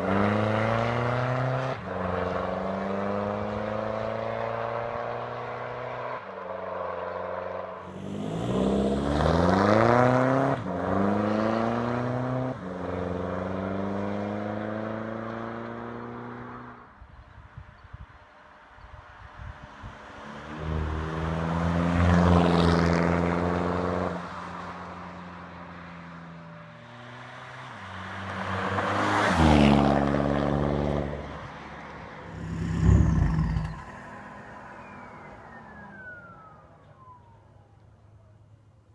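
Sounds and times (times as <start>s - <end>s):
diesel car engine revving: 7.8s - 12.4s, 32.2s - 36.5s.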